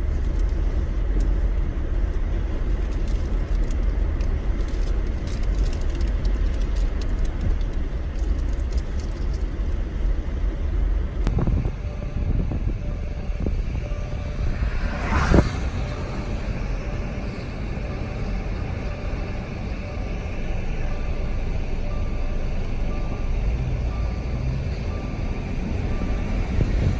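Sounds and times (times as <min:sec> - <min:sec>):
low rumble: 0:11.2 - 0:26.9.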